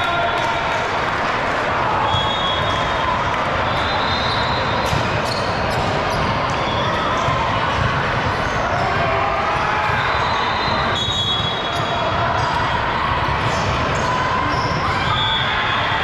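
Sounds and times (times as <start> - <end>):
murmur of spectators: 0.0 - 16.0
sneakers squeaking on floor: 3.6 - 12.6, 13.4 - 15.6
ball bouncing on court: 4.6 - 15.3.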